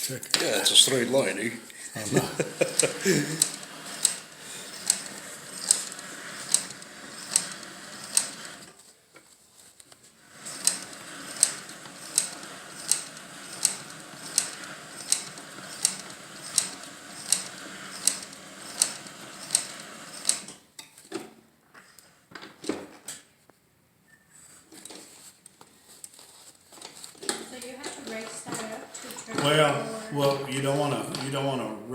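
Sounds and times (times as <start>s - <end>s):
sewing machine clicking: 2.5s - 8.8s, 9.9s - 20.8s, 27.2s - 31.5s.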